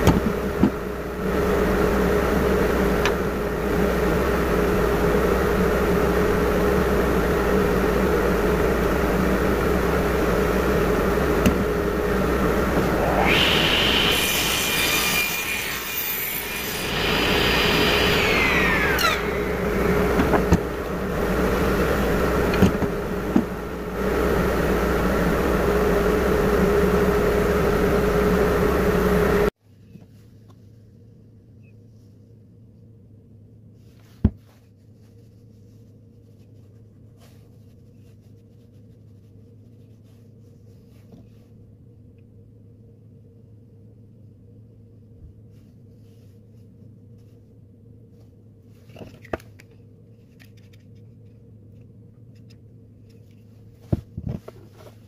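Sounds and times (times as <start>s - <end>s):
low steady hum: 0.0s - 55.0s
power tool cutting wood: 8.6s - 29.4s.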